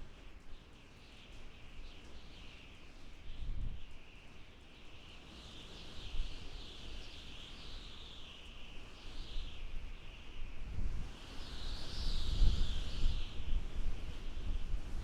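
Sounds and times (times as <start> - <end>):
wind howling and whistling: 8.7 - 15.0.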